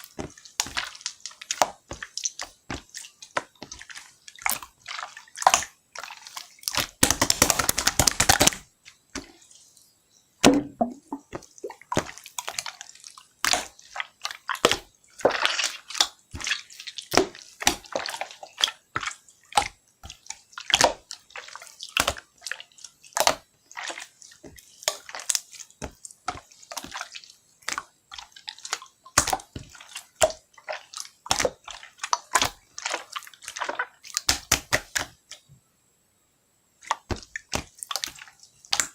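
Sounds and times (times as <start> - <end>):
slime squished by hand: 24.8 - 35.3.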